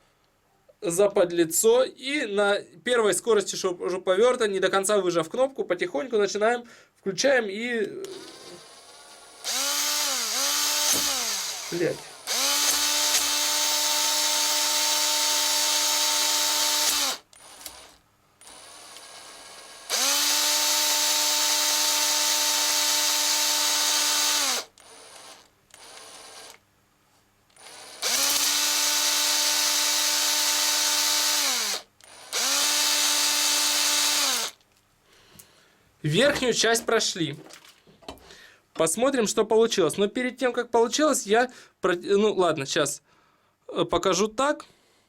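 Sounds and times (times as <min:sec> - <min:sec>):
cordless drill honing cylinder: 0:08.0 - 0:26.6, 0:27.5 - 0:34.6.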